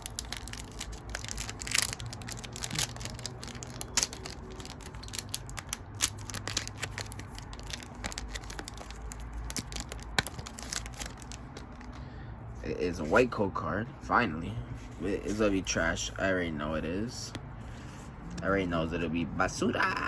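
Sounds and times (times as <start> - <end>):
foil wrapper tearing and crinkling: 0.0 - 11.9.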